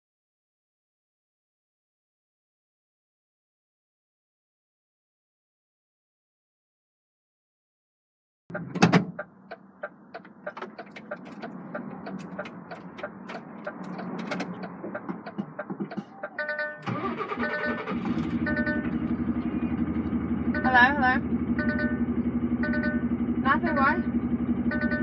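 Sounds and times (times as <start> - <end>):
clicks: 8.5 - 17.0
diesel engine starting up: 8.5 - 25.0
electronic beeps: 15.8 - 21.0, 21.6 - 22.0, 22.6 - 23.1, 24.7 - 25.0.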